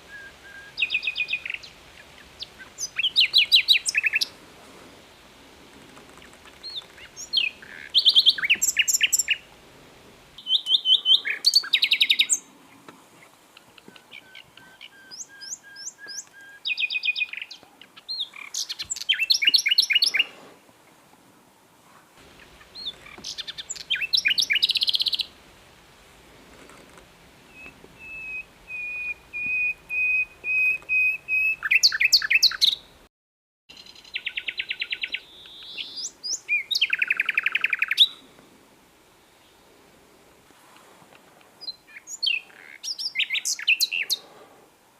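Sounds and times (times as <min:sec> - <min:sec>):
nightingale singing: 0:00.0 - 0:04.4, 0:06.1 - 0:09.6, 0:10.4 - 0:12.8, 0:13.5 - 0:20.4, 0:22.2 - 0:25.4, 0:27.4 - 0:33.0, 0:33.7 - 0:38.2, 0:41.6 - 0:44.2.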